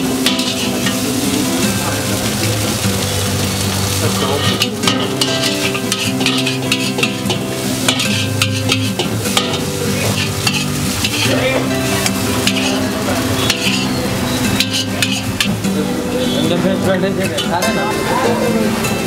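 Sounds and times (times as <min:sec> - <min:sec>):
noodles sizzling in a wok: 0:00.0 - 0:16.5
metal spatula scraping a pan: 0:00.2 - 0:01.0, 0:04.4 - 0:12.8, 0:13.4 - 0:15.6.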